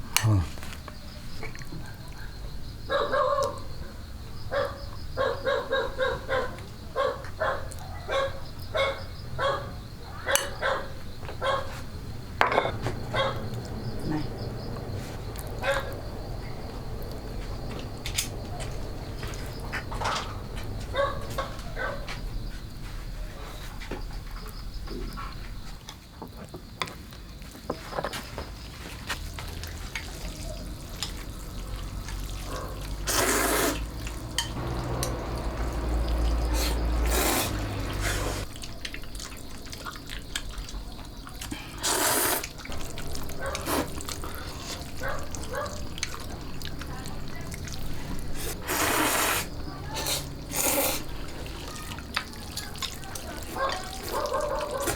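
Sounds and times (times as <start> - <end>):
water splashing and pouring: 29.2 - 49.2, 50.5 - 54.9.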